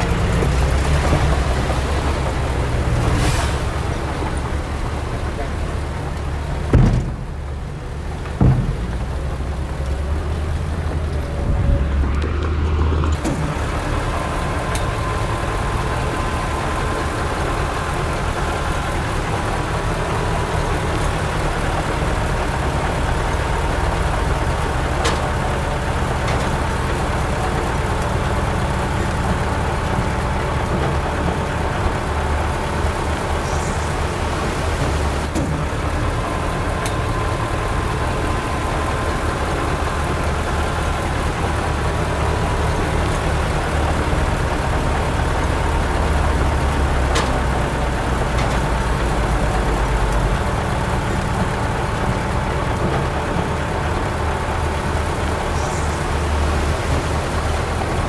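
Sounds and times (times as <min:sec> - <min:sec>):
diesel earthmoving machinery: 0:00.0 - 0:58.0
sharp knocks: 0:06.7 - 0:07.4, 0:08.3 - 0:09.2.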